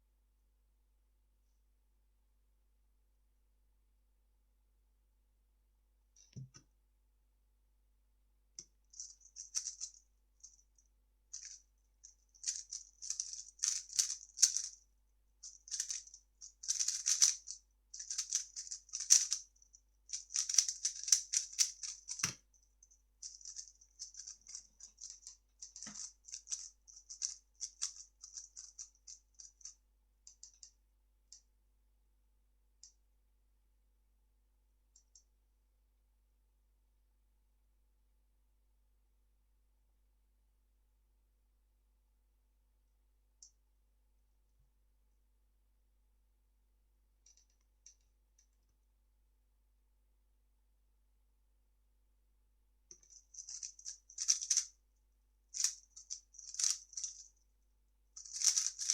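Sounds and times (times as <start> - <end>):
puzzle cube clicking and rattling: 9.0 - 10.0, 11.4 - 11.6, 12.2 - 14.8, 15.4 - 19.5, 20.1 - 22.4, 23.2 - 29.7, 53.0 - 54.7, 55.6 - 57.3, 58.2 - 58.9.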